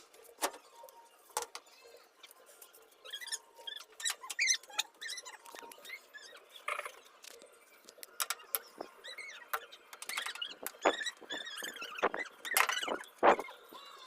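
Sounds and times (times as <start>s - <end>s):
washing machine drum squeaking: 8.2s - 13.6s.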